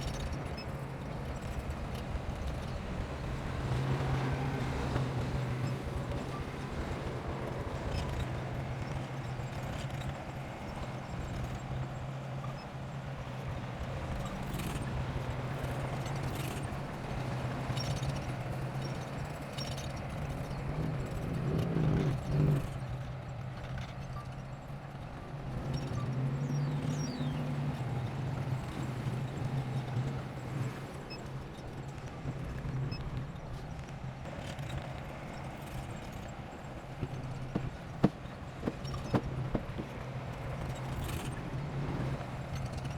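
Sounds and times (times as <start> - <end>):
diesel engine running: 33.8 - 42.9.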